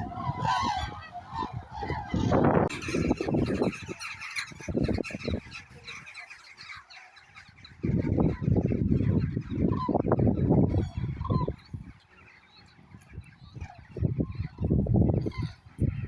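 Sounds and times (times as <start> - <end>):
cranes trumpeting calls: 0.0 - 12.7.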